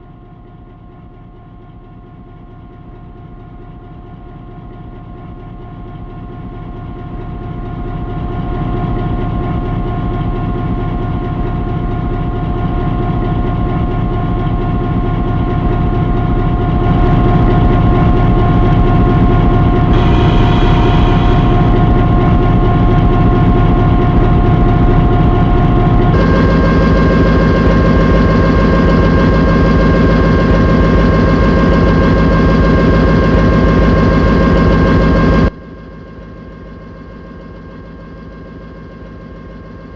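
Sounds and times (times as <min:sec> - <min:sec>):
engine whine: 0:08.3 - 0:39.6
locomotive engine pulsing: 0:12.0 - 0:35.5.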